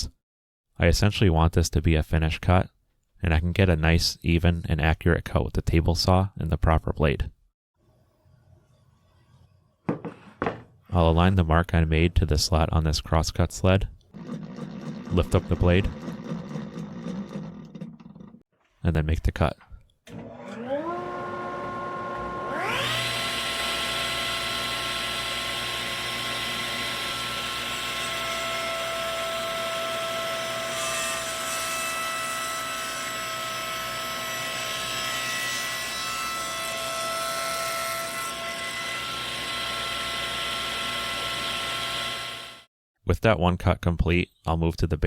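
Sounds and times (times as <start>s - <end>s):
saw blade cutting wood: 14.2s - 18.4s, 20.1s - 42.7s
table saw whining: 14.2s - 18.4s, 20.1s - 42.7s.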